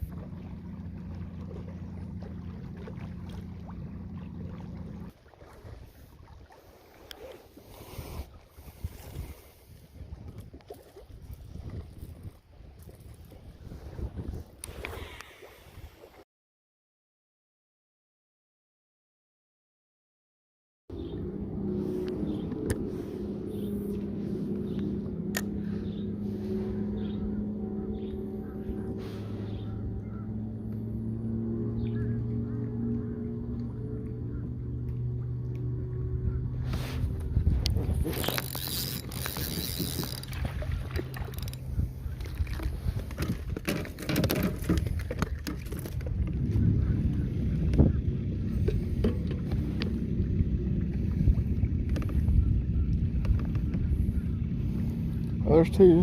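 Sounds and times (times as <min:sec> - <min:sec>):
electric boat motor humming: 0:00.0 - 0:05.2, 0:20.9 - 0:56.0
electric motor humming: 0:37.0 - 0:41.8.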